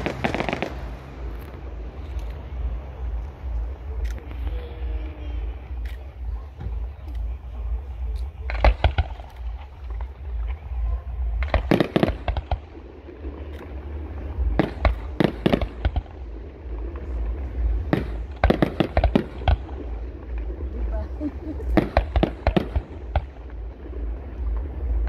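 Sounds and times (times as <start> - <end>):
firework shells bursting: 0.0 - 2.8
low rumble: 0.0 - 25.0.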